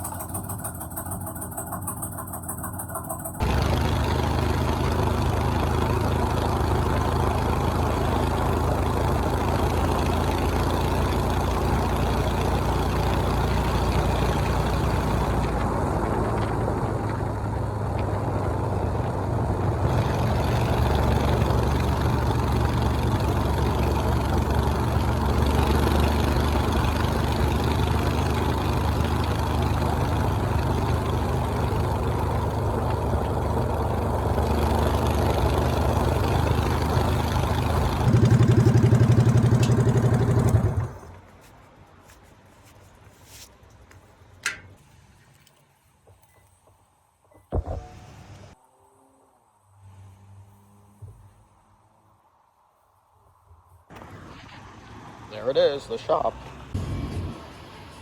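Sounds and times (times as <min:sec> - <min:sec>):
motorcycle engine running: 0:00.0 - 0:41.2.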